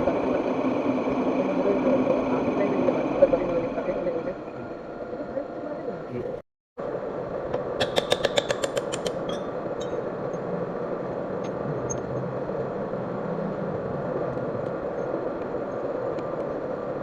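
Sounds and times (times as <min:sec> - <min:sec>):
rapid sharp ticks: 0:07.8 - 0:09.3.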